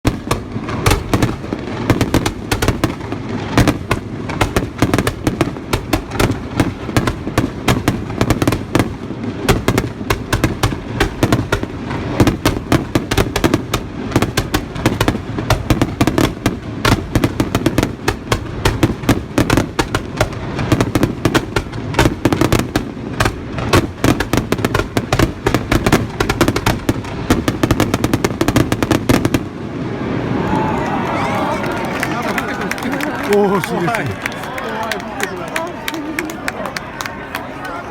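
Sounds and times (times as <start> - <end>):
fireworks bangs and crackles: 0.0 - 34.3.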